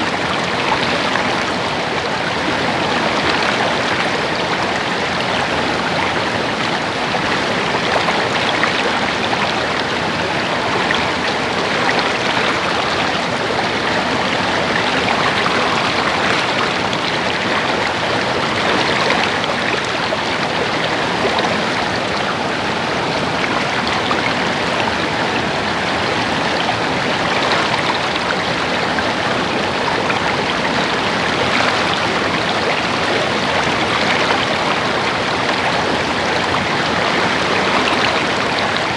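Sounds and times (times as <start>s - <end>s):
stream babbling over rocks: 0.0s - 38.9s.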